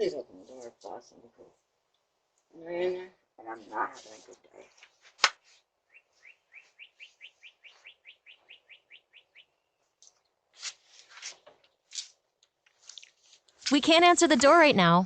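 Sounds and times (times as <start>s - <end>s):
bird chirping: 5.8s - 10.4s.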